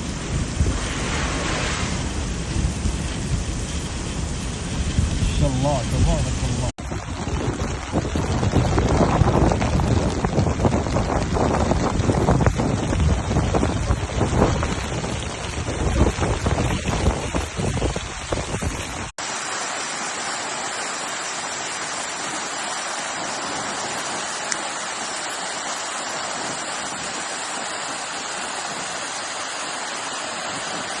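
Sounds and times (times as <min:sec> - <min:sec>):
wind buffeting microphone: 0:00.0 - 0:19.1
rain falling: 0:00.0 - 0:31.0.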